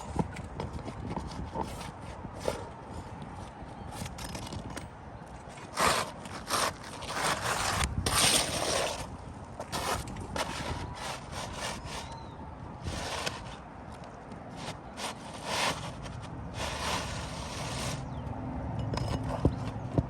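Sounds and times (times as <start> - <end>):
shingles scraping: 5.4 - 20.0.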